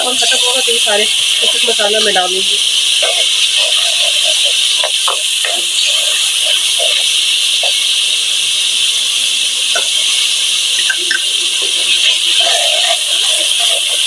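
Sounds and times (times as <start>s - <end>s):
food sizzling in hot oil: 0.0s - 14.0s
metal ladle scraping a pan: 2.8s - 7.9s, 10.8s - 14.0s.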